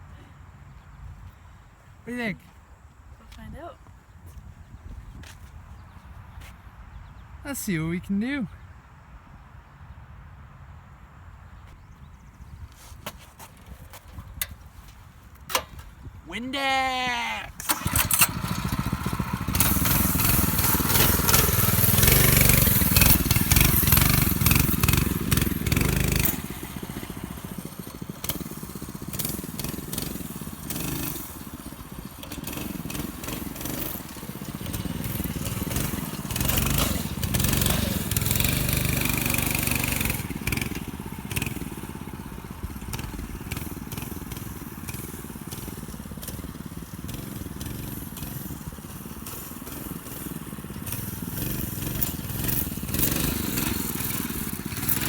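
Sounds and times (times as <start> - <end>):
mini bike engine running: 16.6 - 55.0.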